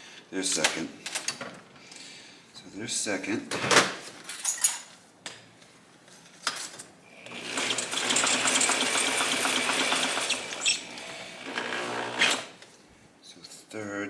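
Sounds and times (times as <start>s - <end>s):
gears spinning with mechanical rattle: 7.6s - 10.7s.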